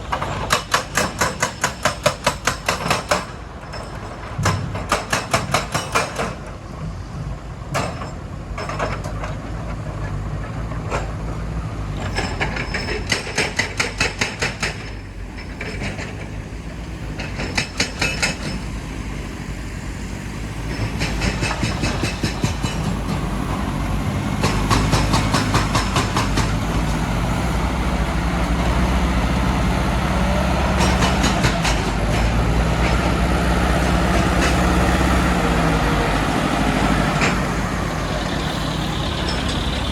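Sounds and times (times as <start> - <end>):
diesel machinery running: 14.8 - 39.9
rapid metallic knocking: 24.4 - 26.7.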